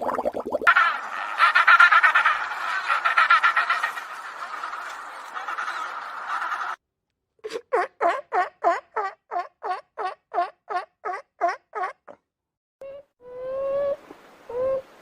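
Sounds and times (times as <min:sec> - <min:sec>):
bird calling: 0:00.7 - 0:06.8
continuous cackling: 0:00.7 - 0:06.8, 0:07.5 - 0:12.2.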